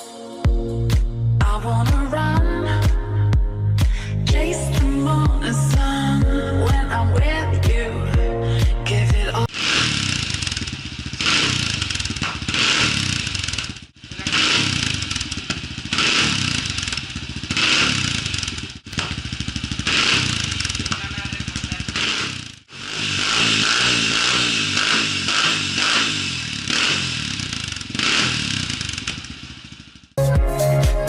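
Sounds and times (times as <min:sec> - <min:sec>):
motorcycle engine revving: 0:09.0 - 0:30.2.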